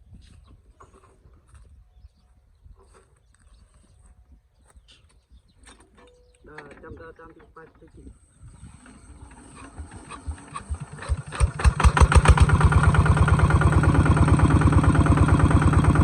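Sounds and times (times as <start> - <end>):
diesel engine starting: 8.7 - 16.0.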